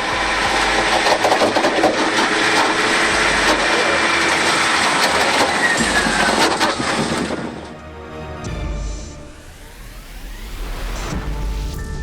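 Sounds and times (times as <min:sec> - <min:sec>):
falling metallic squeal: 0:00.0 - 0:07.8
heavy machinery rattling and grinding: 0:00.0 - 0:07.8
clattering knocks: 0:00.2 - 0:07.8.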